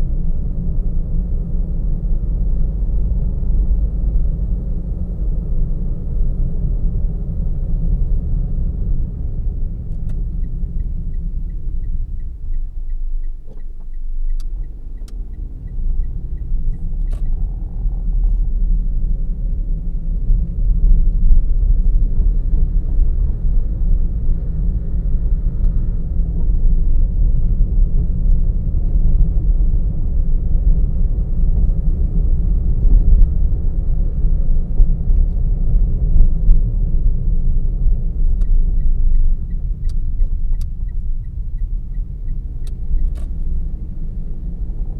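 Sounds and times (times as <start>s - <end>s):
road and engine rumble: 0.0s - 44.9s
faint ticking: 9.9s - 18.2s.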